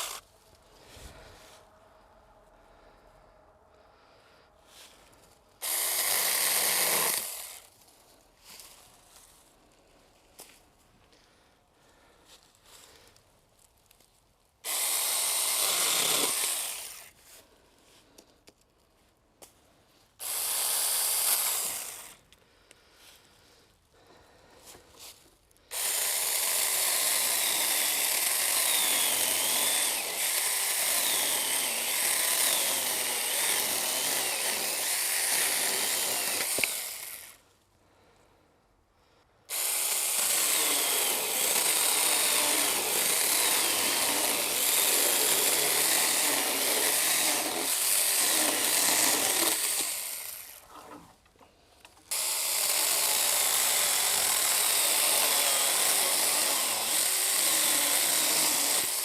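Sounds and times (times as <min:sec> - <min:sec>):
electric chainsaw cutting wood: 0:00.0 - 0:00.2, 0:05.6 - 0:07.8, 0:14.6 - 0:17.2, 0:20.2 - 0:22.2, 0:25.7 - 0:37.4, 0:39.5 - 0:50.7, 0:52.0 - 0:59.0.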